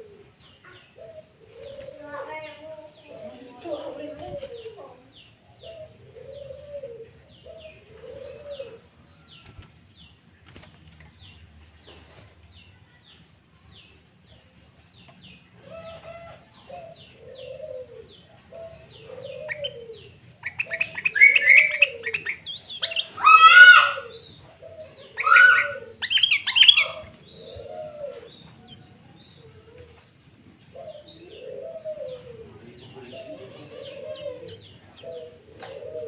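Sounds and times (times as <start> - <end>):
bird singing rapid phrases: 18.6 - 27.6.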